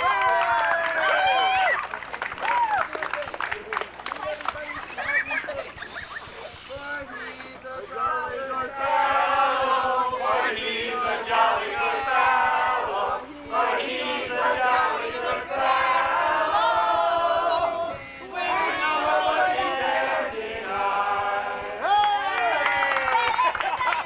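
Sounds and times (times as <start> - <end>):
men's chorus singing a cappella: 6.7 - 22.7.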